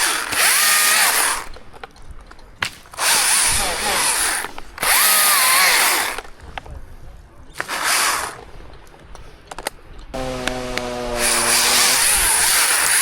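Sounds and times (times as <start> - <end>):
chainsaw revving: 0.0 - 1.6, 2.9 - 6.3, 7.6 - 8.5, 10.2 - 13.0.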